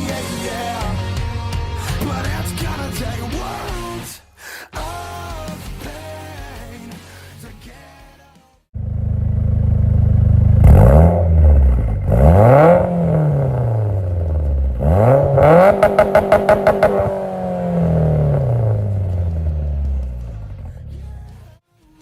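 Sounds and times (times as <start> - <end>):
vehicle engine revving: 8.8 - 21.5.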